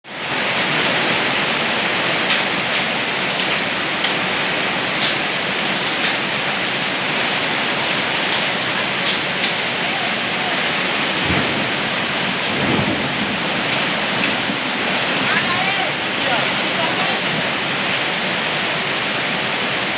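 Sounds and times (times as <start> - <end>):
heavy rain hissing: 0.1 - 19.9
hailstones clicking on hard surfaces: 1.7 - 17.3.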